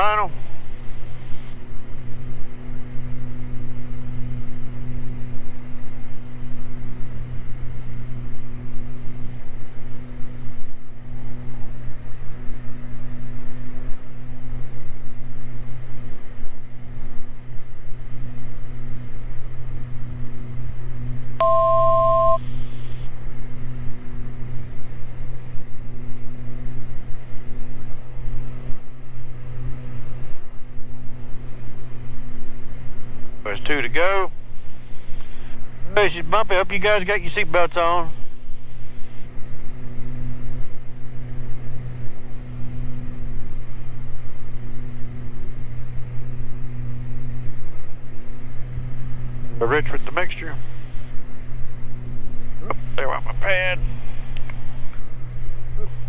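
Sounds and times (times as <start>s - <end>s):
aircraft engines droning: 0.0s - 56.0s
two-note electronic beep: 21.4s - 22.4s.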